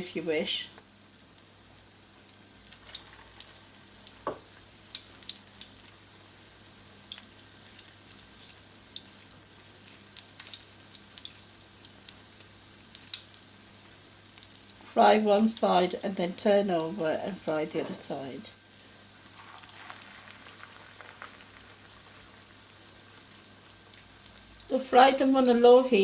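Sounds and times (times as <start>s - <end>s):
food sizzling in oil: 0.0s - 26.0s
oil crackling and popping: 0.7s - 26.0s.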